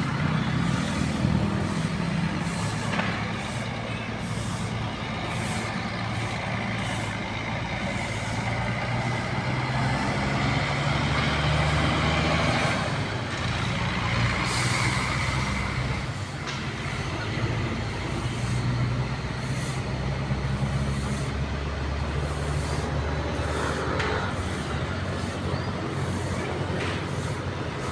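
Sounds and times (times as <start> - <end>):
bus diesel engine running: 0.0 - 27.9.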